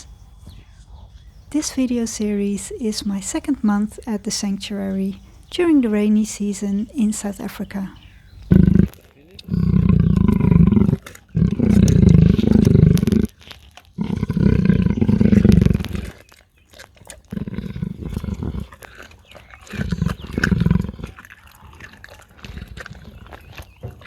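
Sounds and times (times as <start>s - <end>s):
big cat grunting: 6.1s - 24.0s
big cat roaring: 8.5s - 16.3s, 17.0s - 24.0s.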